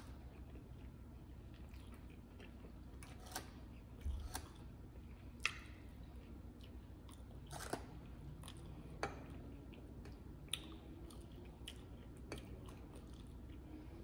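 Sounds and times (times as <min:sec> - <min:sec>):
faint low hum: 0:00.0 - 0:14.0
person chewing: 0:00.0 - 0:14.0.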